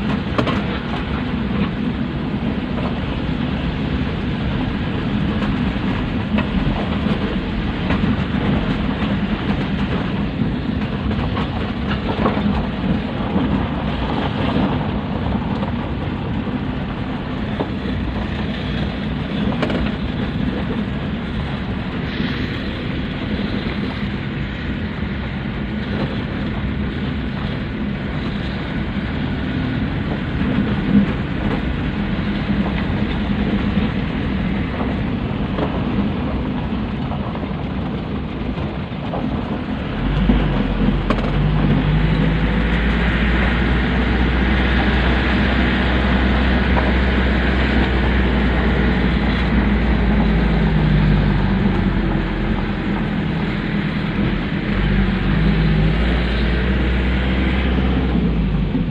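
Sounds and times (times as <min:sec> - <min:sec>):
truck engine rumbling: 0:00.0 - 0:58.9.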